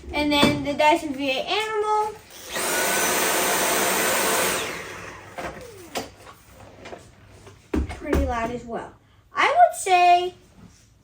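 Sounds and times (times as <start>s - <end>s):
cordless vacuum whining: 2.2s - 6.8s
vacuum winding down: 2.4s - 6.2s.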